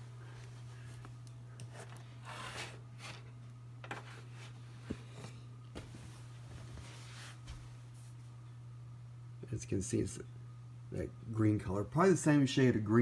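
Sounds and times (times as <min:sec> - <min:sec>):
steady low hum: 0:00.0 - 0:13.0
handling rustles and knocks: 0:00.3 - 0:08.2.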